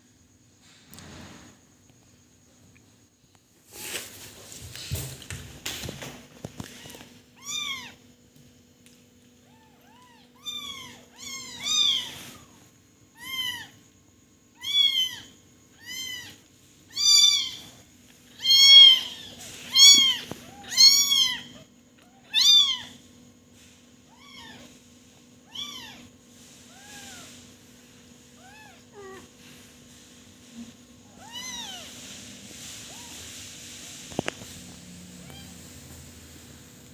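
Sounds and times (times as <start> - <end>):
kitten meowing: 14.6 - 17.7, 18.4 - 21.6.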